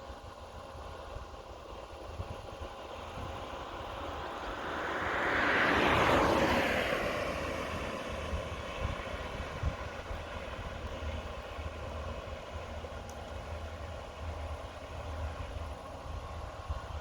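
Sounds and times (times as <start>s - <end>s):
harvest machinery droning: 0.1s - 17.0s
vehicle passing by: 3.8s - 10.5s.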